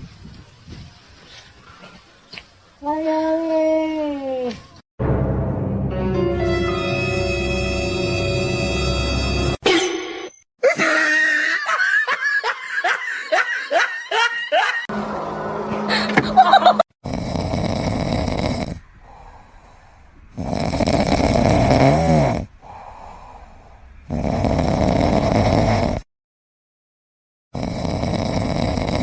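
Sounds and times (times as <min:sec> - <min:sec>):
pet snoring loudly: 0:17.0 - 0:19.2, 0:20.3 - 0:22.8, 0:24.0 - 0:26.1, 0:27.6 - 0:29.0.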